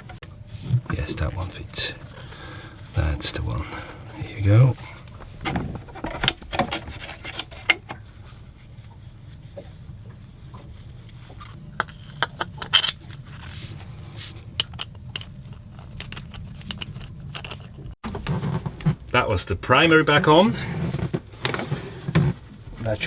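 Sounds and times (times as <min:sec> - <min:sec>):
hands and tools clicking and scraping: 0:00.0 - 0:19.2, 0:20.1 - 0:23.0
steady low hum: 0:00.0 - 0:23.0.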